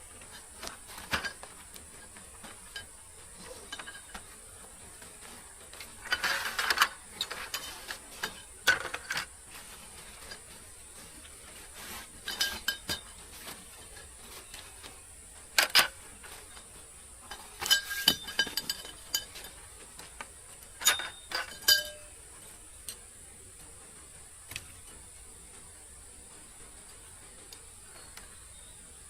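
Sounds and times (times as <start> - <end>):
utensils clinking on cookware: 0.0 - 15.0, 15.6 - 22.2.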